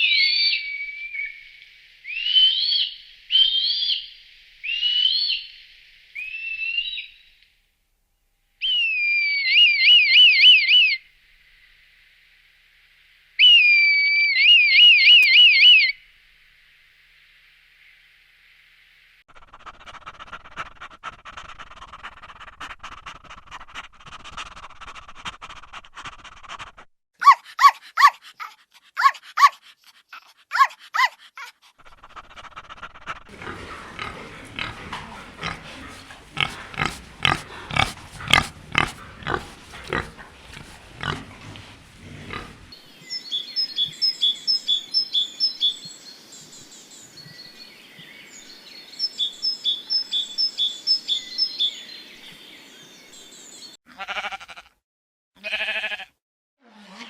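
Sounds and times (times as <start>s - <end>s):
loud gliding animal calls: 33.3s - 42.8s
rhythmic grunting pulses: 33.3s - 42.8s
dense chorus of animal calls: 33.3s - 45.8s.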